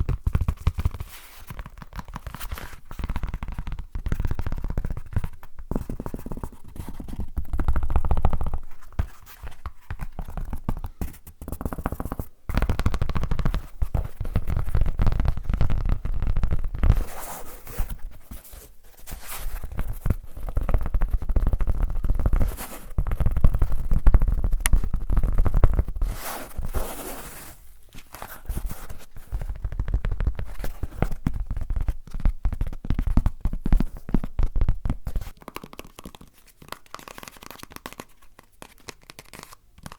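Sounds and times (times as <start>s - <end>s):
objects scraped at microphone: 26.0s - 27.6s.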